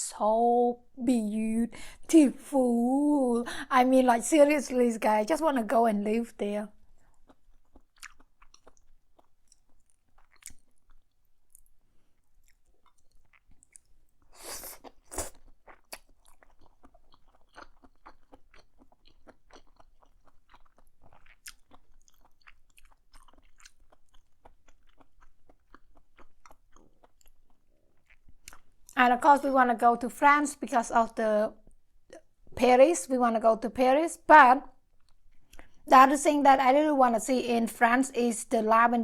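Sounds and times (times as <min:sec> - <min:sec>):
person chewing food: 0:06.8 - 0:29.0, 0:34.8 - 0:35.9.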